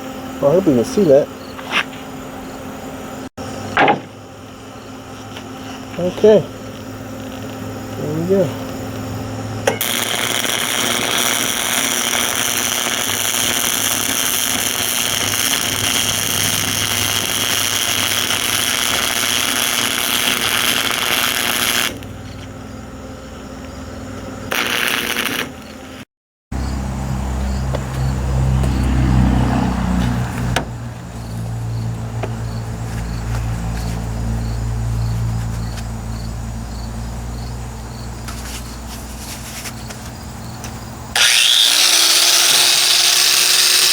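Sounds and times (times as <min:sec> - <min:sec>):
welder arc crackling and hissing: 0:05.1 - 0:09.2, 0:09.8 - 0:22.5, 0:24.5 - 0:26.1.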